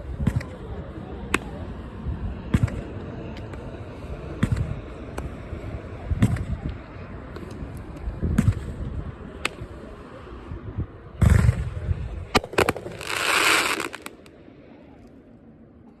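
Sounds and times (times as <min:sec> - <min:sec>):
firework booms: 0:12.4 - 0:14.2
firework cracks: 0:12.4 - 0:14.3
hissing crackle: 0:12.4 - 0:14.3.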